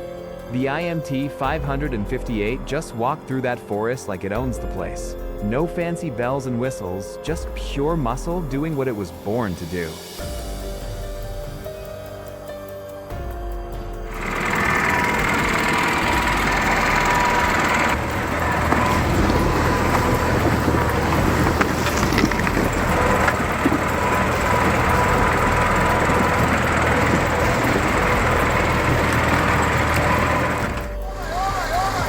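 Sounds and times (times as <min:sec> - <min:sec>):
tractor engine droning: 0:14.0 - 0:32.0
machine working: 0:14.1 - 0:32.0.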